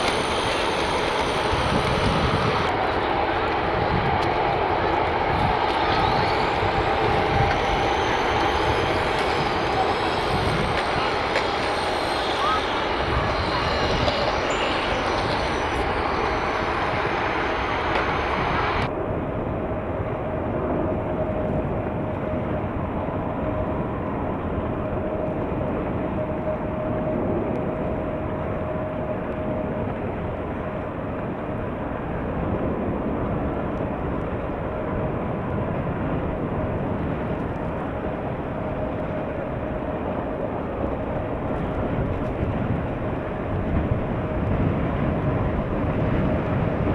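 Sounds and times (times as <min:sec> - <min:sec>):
jet engines roaring: 0:00.0 - 0:30.6
faint engine whine: 0:00.0 - 0:32.8.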